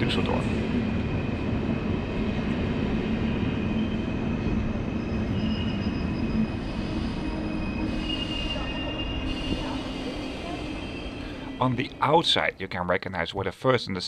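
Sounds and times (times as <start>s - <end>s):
train rumbling: 0.0s - 13.6s
high squeal from wheels: 3.2s - 12.0s.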